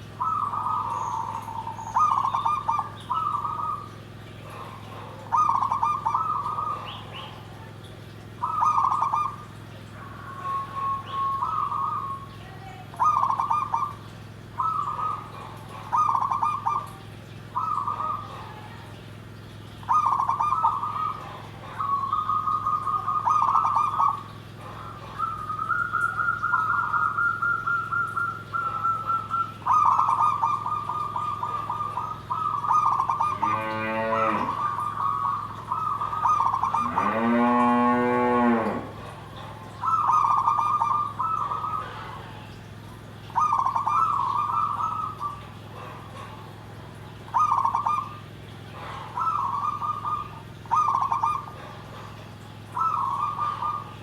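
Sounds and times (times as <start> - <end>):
dove cooing: 0.0 - 54.0
low drawn-out animal calls: 19.8 - 54.0.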